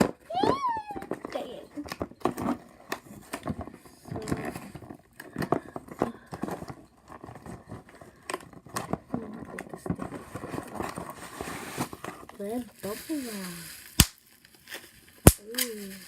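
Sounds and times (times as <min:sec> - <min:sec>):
plastic packaging crinkling: 0:06.6 - 0:16.0.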